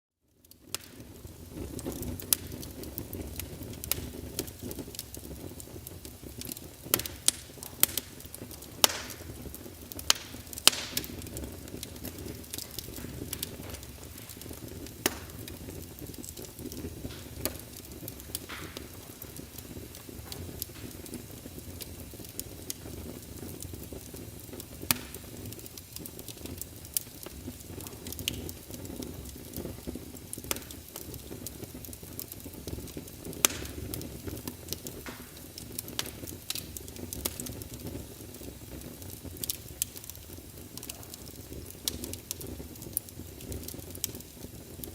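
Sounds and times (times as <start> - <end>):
wood fire crackling: 0.2 - 44.9.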